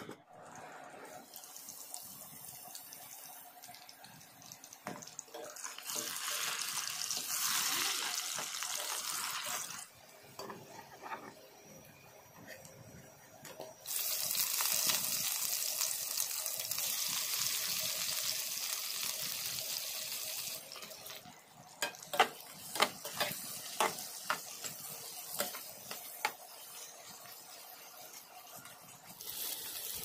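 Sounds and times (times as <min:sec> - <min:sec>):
food sizzling in a hot pan: 0:01.2 - 0:11.3, 0:13.8 - 0:30.0
spoon knocking and scraping pan: 0:21.8 - 0:26.5.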